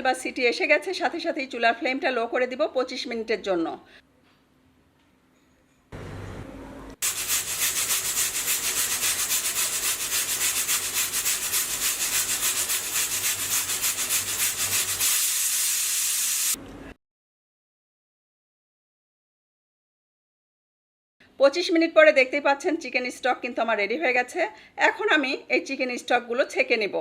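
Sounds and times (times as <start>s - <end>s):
pressure cooker steam hissing: 7.0s - 16.6s.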